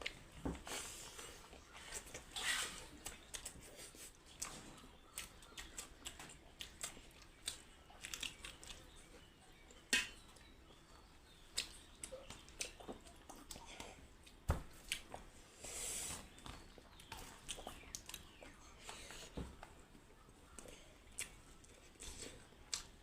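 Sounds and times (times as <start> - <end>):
person crunching and chewing: 5.2 - 8.9.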